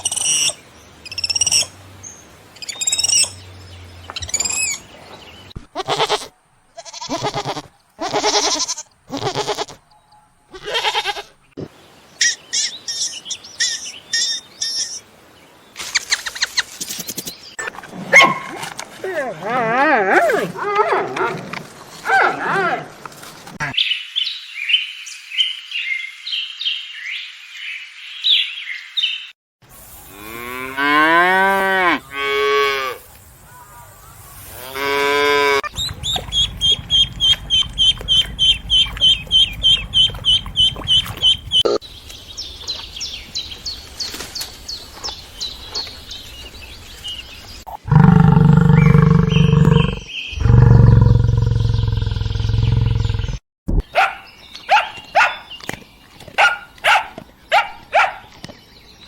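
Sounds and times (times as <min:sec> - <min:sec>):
high chirping: 0:00.0 - 0:01.7, 0:02.6 - 0:04.9, 0:35.6 - 0:41.8
rising and falling animal calls: 0:02.6 - 0:03.4, 0:34.8 - 0:41.8, 0:47.8 - 0:53.4
fast run of chirps: 0:35.6 - 0:41.7
cattle mooing: 0:47.9 - 0:52.6.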